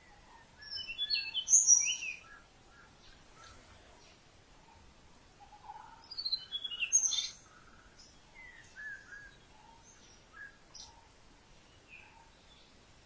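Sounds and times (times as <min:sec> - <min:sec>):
wild birds chirping: 0:00.0 - 0:13.0.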